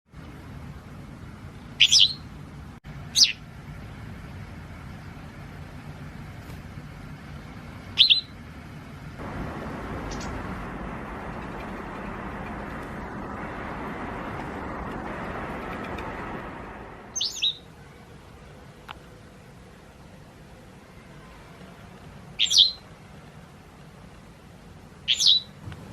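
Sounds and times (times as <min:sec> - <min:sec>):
steady rushing background noise: 0:08.8 - 0:20.8, 0:25.6 - 0:25.9
bird giving sharp chirps: 0:09.7 - 0:10.6, 0:17.1 - 0:17.7, 0:22.4 - 0:22.8, 0:25.1 - 0:25.6.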